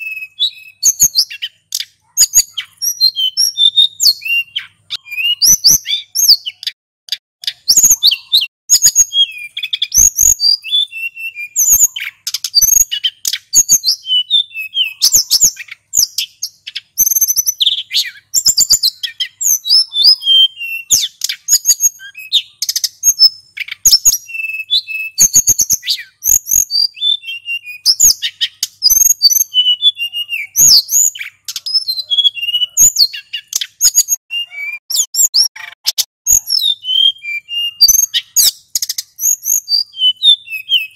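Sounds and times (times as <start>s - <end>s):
bird singing chirps and trills: 0.0s - 40.9s.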